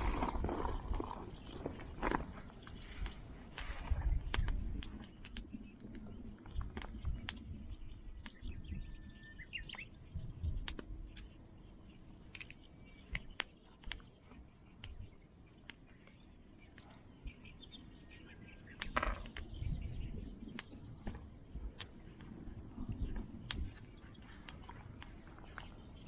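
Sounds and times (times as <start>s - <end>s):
faint bird chirps: 0.0s - 26.0s
sharp clicks and light knocks: 1.7s - 7.4s, 12.3s - 14.1s, 18.8s - 19.5s.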